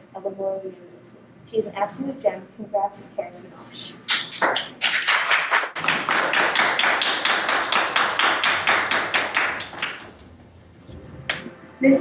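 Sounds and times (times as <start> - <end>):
people clapping: 4.1 - 10.3, 11.3 - 11.5.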